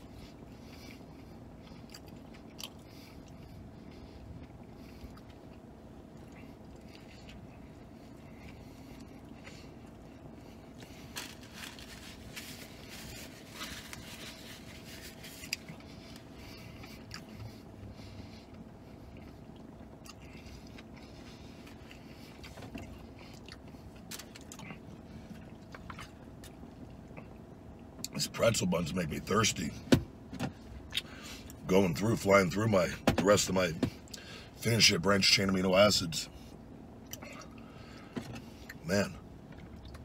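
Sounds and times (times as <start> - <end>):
man chewing food: 0.0 - 28.2
faint steady hum: 0.0 - 40.0.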